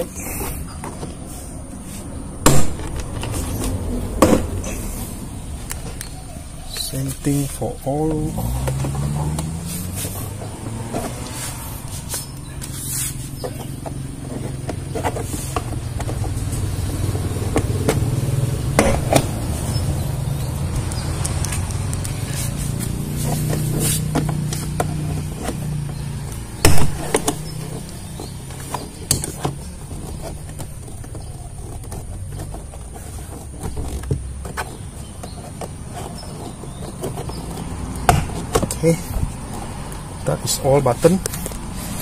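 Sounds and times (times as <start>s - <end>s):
sharp clip pop: 2.4s - 3.1s.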